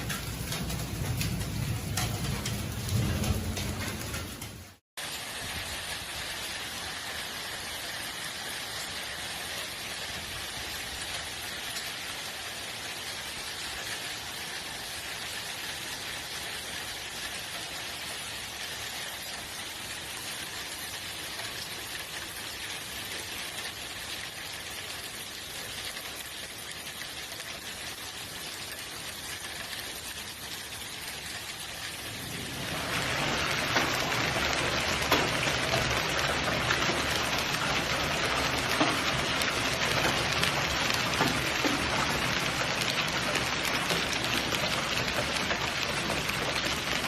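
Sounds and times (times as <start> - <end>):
steady rain hissing: 0.0 - 47.0.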